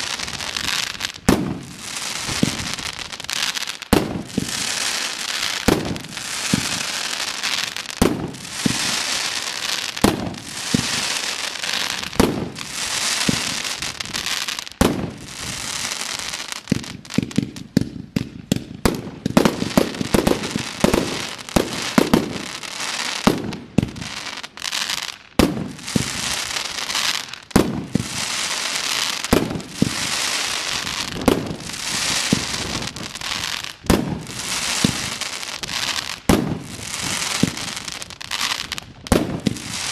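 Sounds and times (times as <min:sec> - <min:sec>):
crackling hiss of fireworks: 0:00.0 - 0:39.9
fireworks bangs: 0:00.0 - 0:39.9.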